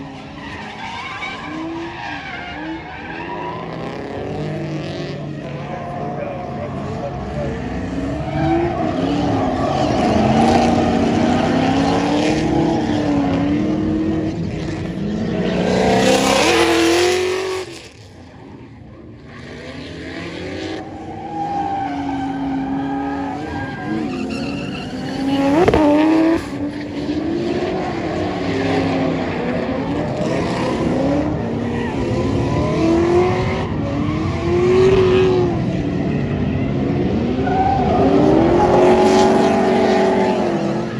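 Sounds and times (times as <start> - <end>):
car engine revving: 0.0 - 40.9
tyres squealing: 21.0 - 26.8.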